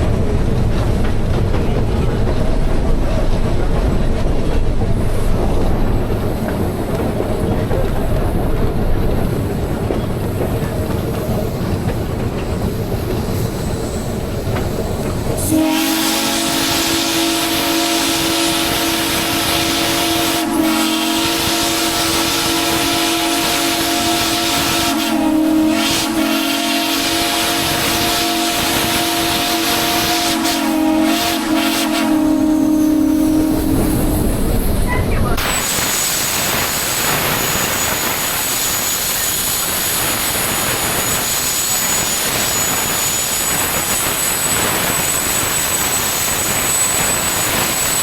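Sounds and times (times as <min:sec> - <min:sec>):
rumbling train: 0:00.0 - 0:48.0
steam locomotive whistle: 0:15.4 - 0:34.3, 0:35.4 - 0:48.0.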